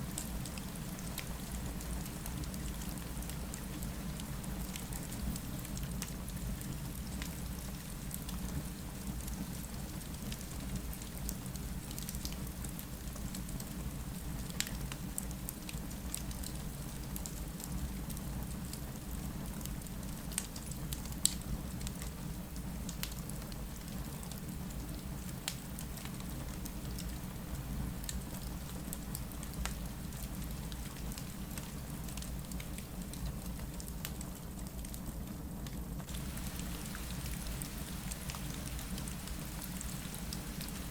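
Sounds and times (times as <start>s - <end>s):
steady rain: 0.0s - 40.9s
fireplace crackling: 23.8s - 34.7s, 36.1s - 40.9s.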